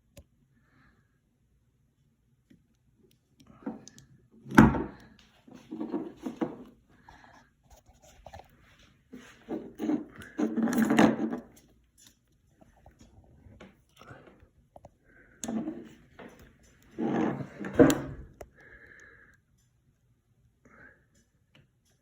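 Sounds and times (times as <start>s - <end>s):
handling knocks and clunks: 17.0s - 18.3s.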